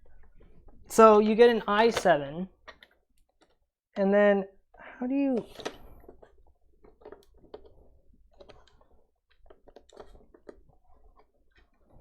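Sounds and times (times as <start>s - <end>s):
plastic parts clicking: 5.3s - 11.8s.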